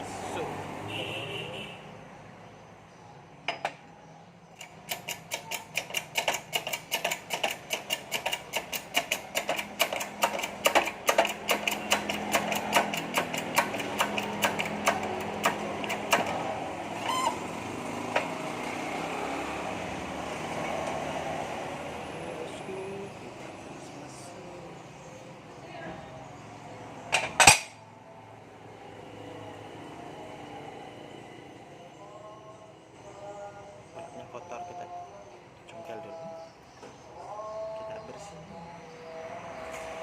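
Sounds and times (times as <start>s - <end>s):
rapid metallic clicks: 4.6s - 16.4s.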